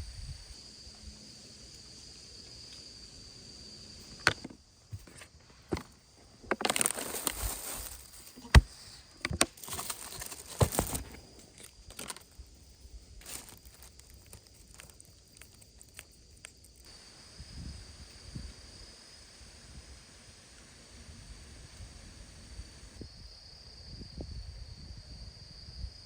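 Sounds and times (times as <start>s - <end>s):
faint high insect drone: 0.0s - 26.0s
rustling and handling noises: 4.9s - 16.8s.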